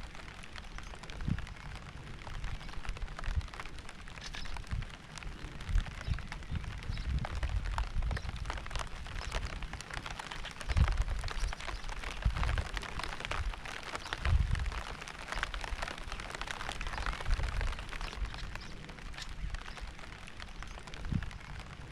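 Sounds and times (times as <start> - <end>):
raindrops ticking on a surface: 0.0 - 21.9
steady rain: 0.0 - 21.9.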